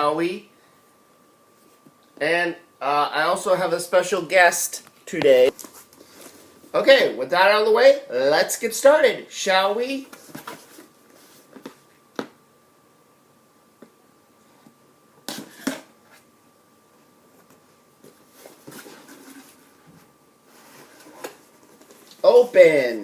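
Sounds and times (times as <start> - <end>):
faint high hum: 0.0 - 23.0.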